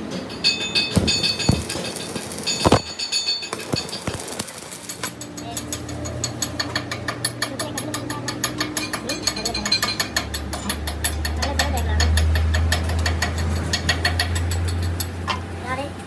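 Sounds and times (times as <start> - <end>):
rapid mechanical clicking: 3.5 - 15.3.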